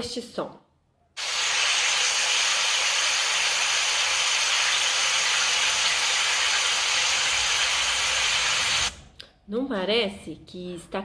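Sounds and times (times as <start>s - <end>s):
water falling: 1.2s - 8.9s.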